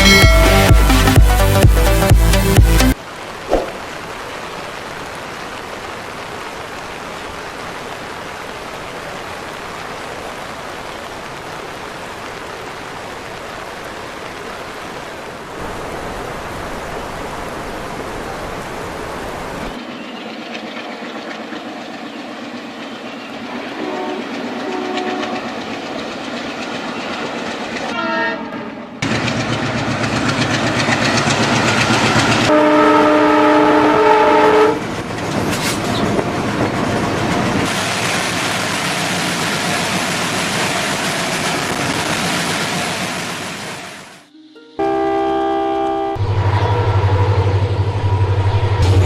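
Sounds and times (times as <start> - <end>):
train rumble and wheel clatter: 7.1 - 44.1, 45.8 - 49.0
locomotive horn: 23.7 - 25.5, 27.9 - 29.0, 32.5 - 34.9, 44.3 - 49.0.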